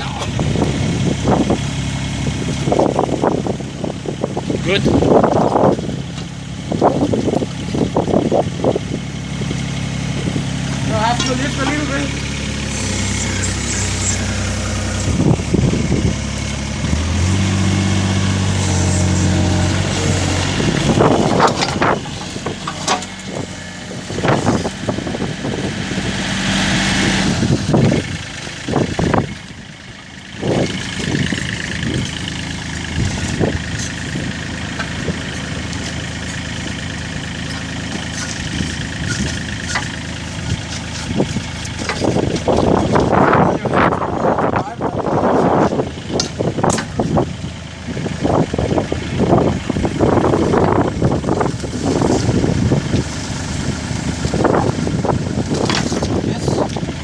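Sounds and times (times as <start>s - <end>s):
mini excavator engine running: 0.0s - 57.0s
sharp knocks and clanks: 21.0s - 23.4s, 55.6s - 56.8s.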